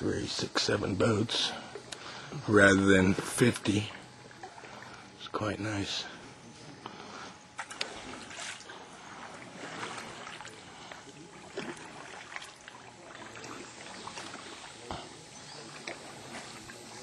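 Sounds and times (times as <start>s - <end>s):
water lapping and dripping: 0.0s - 5.2s, 6.1s - 17.0s
faint voices: 0.0s - 17.0s
paddles knocking hulls: 7.6s - 17.0s.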